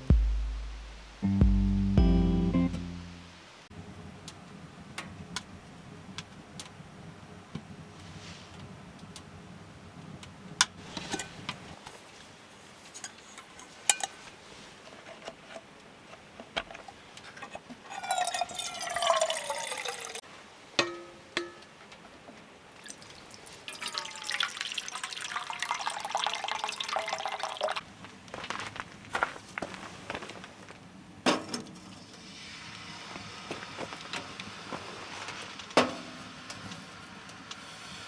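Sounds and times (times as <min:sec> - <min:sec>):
descending electronic trill: 0:00.0 - 0:03.4.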